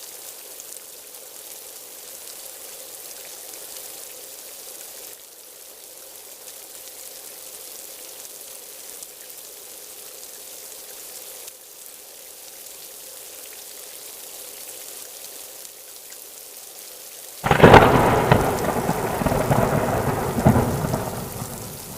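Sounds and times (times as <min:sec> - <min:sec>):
rain falling: 0:00.0 - 0:21.9
thunder cracking and rumbling: 0:17.4 - 0:21.9.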